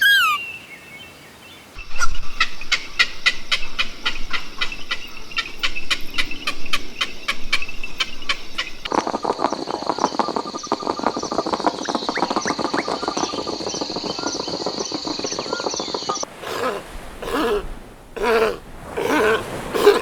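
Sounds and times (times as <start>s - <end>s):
chorus of small animal calls: 0.0s - 0.5s, 15.4s - 20.0s.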